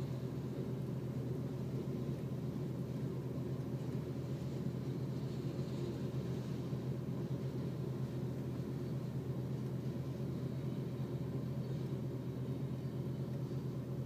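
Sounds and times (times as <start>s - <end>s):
freight train low rumble: 0.0s - 14.0s.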